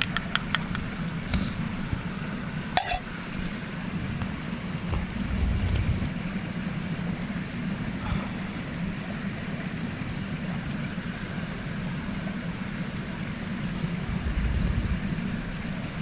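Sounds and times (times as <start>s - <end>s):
stream rushing: 6.1s - 16.0s.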